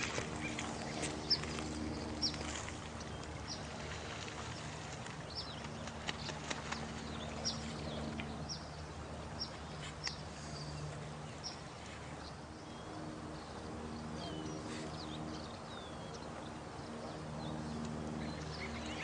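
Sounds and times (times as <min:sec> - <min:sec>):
running water: 0:00.0 - 0:13.9
faint low drone: 0:00.0 - 0:19.0.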